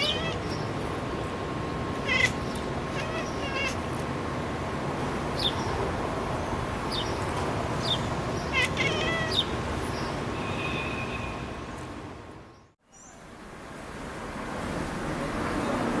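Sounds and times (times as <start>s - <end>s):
cat chirping and chattering: 0.0s - 0.8s, 2.0s - 4.0s, 7.8s - 9.6s
steady background noise: 0.0s - 10.5s.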